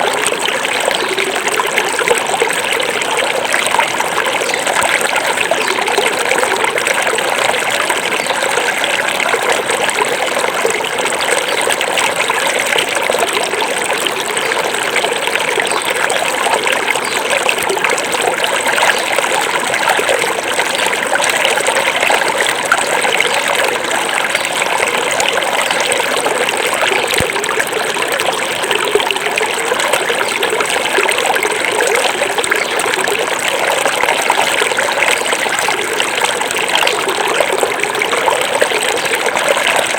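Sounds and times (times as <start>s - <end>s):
river babbling over stones: 0.0s - 39.9s.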